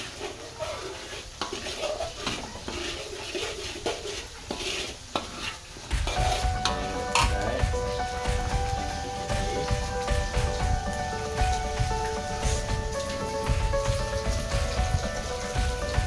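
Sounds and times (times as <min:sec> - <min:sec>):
spices sizzling in oil: 0:00.0 - 0:16.0
utensil scraping in a pan: 0:00.0 - 0:16.0
background music: 0:06.0 - 0:16.0.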